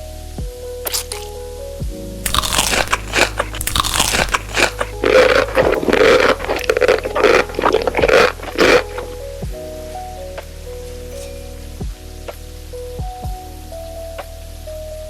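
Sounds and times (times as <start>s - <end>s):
person eating loudly: 2.3s - 9.1s.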